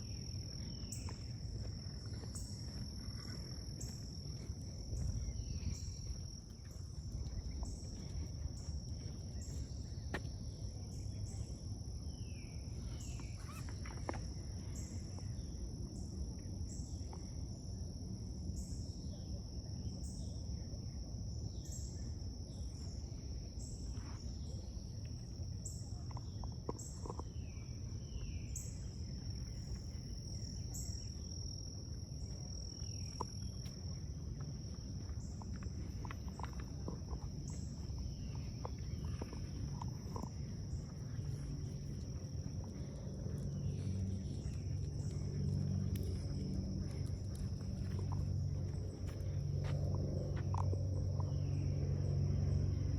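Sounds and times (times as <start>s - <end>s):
insect chirping: 0.0s - 52.9s
low rumble: 28.8s - 52.9s.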